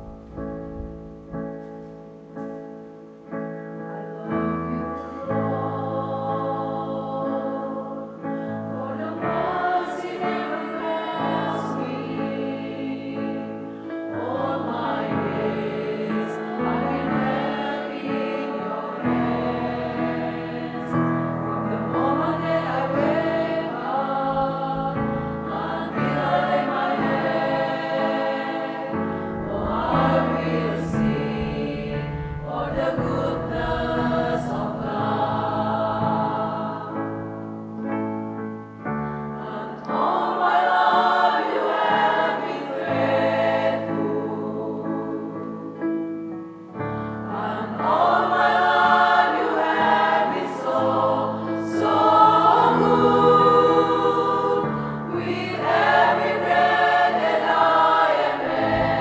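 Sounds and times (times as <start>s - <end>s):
sustained low accompaniment notes: 0.0s - 1.7s, 29.0s - 36.0s, 58.4s - 59.0s
men's choir singing in harmony: 4.0s - 37.2s, 39.4s - 46.0s, 47.2s - 59.0s.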